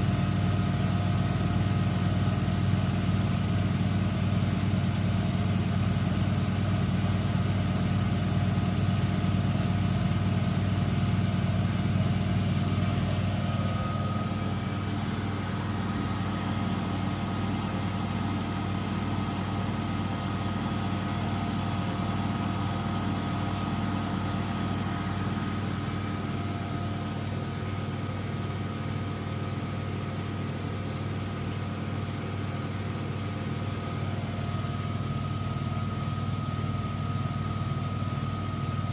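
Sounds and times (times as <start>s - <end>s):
washing machine humming: 0.0s - 38.9s
high-pitched whine: 11.2s - 29.2s.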